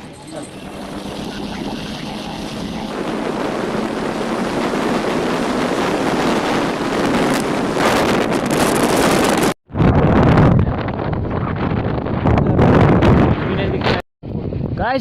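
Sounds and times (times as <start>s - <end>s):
vehicle road noise: 0.0s - 9.0s
wind rushing over microphone: 0.0s - 15.0s.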